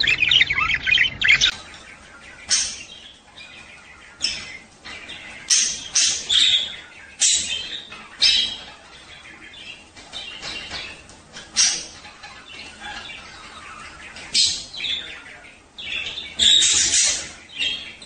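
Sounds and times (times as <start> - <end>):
budgerigars chirping and warbling: 0.0 - 18.0.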